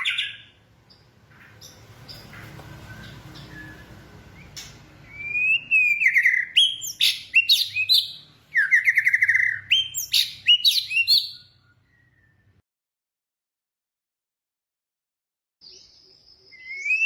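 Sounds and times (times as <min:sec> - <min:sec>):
bird singing trilled notes: 0:00.0 - 0:12.6, 0:15.6 - 0:17.0.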